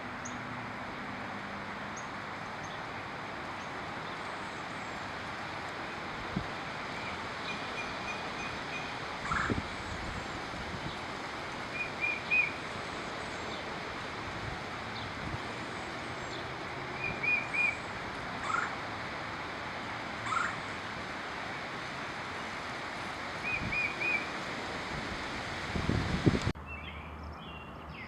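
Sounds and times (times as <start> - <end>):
steady background hiss: 0.0 - 26.6
bird whistled notes: 11.8 - 12.6, 17.0 - 17.8.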